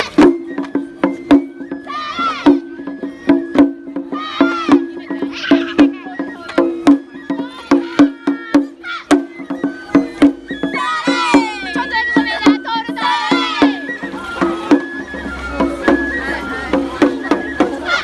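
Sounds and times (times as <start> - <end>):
sharp drum strokes: 3.1 - 18.0
high held melody: 9.2 - 18.0.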